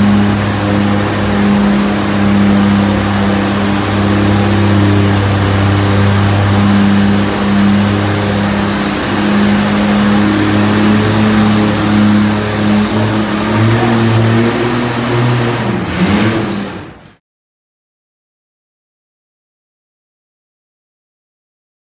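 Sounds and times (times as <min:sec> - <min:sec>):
tractor engine running: 0:00.0 - 0:17.2.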